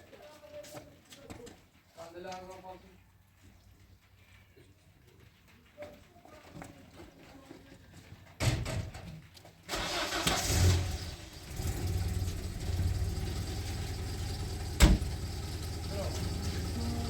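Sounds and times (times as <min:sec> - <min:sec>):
car engine starting and idling: 0:09.7 - 0:17.0.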